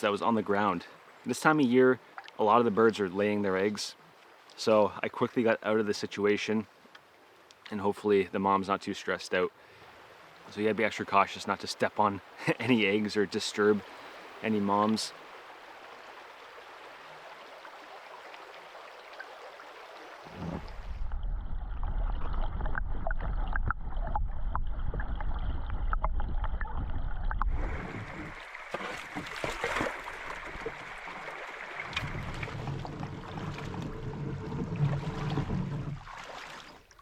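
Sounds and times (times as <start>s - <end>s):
low rumble with clicks: 20.4s - 28.5s, 31.9s - 36.1s
stream water hissing: 27.5s - 36.8s.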